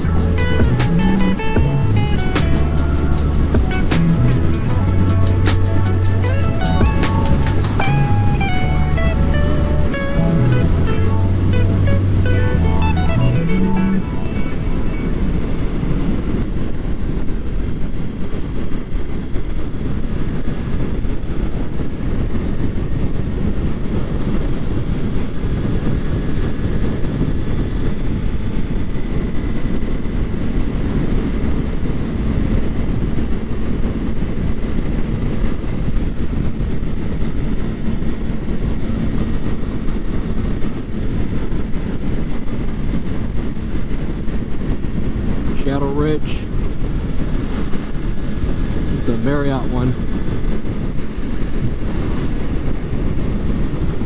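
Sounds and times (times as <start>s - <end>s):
motorcycle engine running: 0.0s - 16.2s
wind buffeting microphone: 0.0s - 54.0s.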